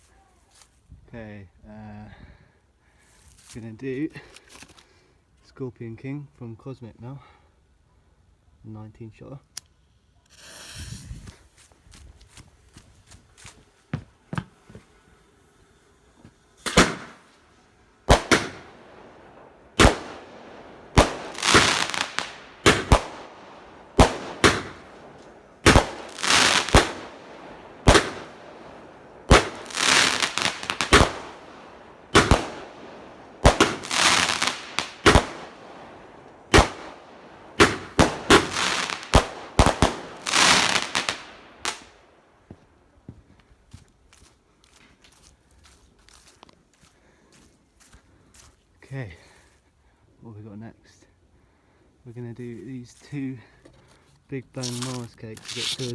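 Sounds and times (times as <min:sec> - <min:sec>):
noisy firework burst: 0:14.9 - 0:17.4, 0:18.0 - 0:41.9
firework shots sharp reports: 0:16.6 - 0:17.4, 0:18.0 - 0:42.0.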